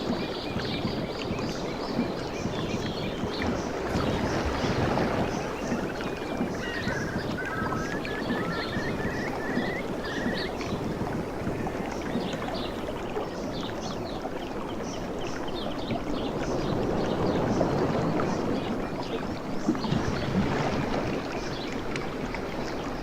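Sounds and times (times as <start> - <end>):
waves washing on beach: 0.0 - 14.2
bird calling: 5.0 - 12.9.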